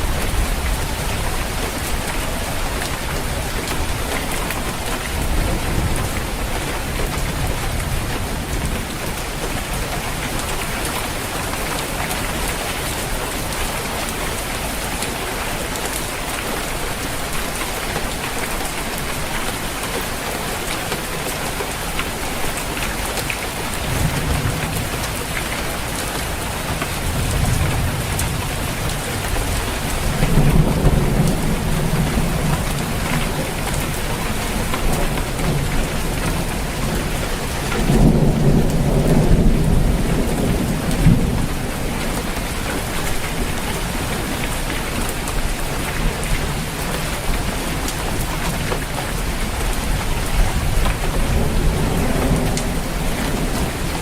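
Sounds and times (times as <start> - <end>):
rain drumming on a roof: 0.0 - 54.0
thunder rumbling: 23.7 - 44.8, 49.7 - 54.0.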